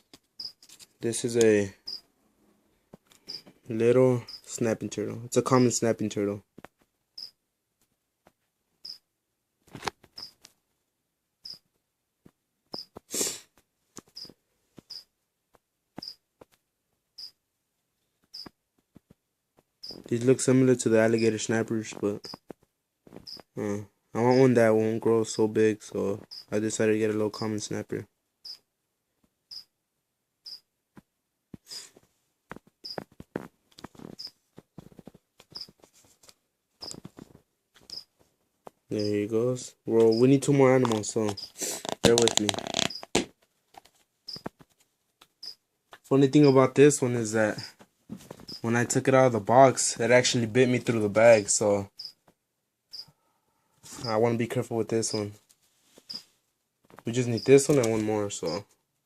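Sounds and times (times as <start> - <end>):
scratching and tapping: 30.9 - 39.1, 40.8 - 46.1
packaging rustling and clicking: 40.8 - 44.8.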